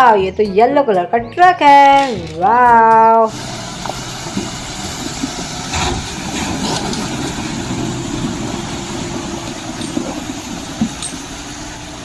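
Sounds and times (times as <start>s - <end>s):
truck engine idling: 3.2s - 12.0s.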